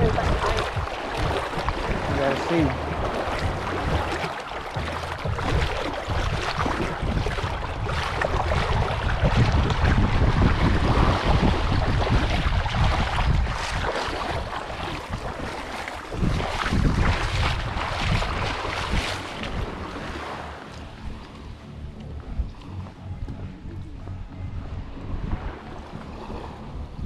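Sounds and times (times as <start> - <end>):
water washing: 0.0 - 21.6
wind buffeting microphone: 0.0 - 27.0.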